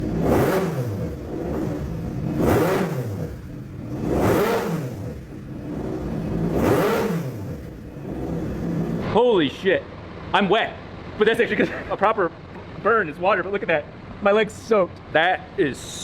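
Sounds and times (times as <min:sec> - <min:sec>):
rotary engine revving: 0:00.0 - 0:09.2.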